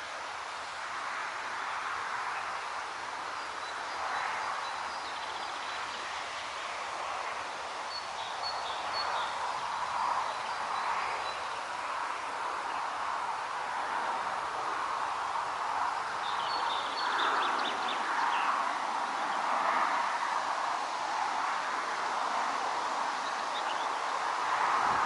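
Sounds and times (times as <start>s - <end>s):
wind rustling through foliage: 0.0s - 25.0s.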